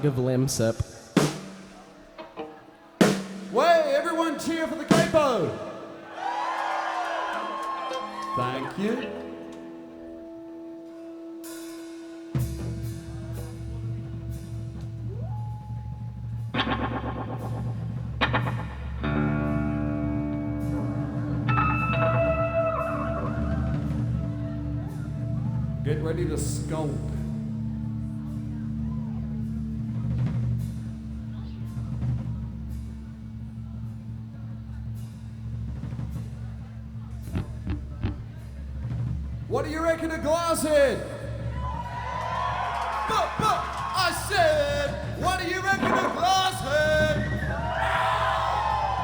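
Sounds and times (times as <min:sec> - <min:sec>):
drum and cymbal hits: 0:00.7 - 0:02.1, 0:03.0 - 0:03.7, 0:04.4 - 0:06.5, 0:11.4 - 0:49.0
strummed chords: 0:08.0 - 0:41.0
low bass tone: 0:12.4 - 0:39.5.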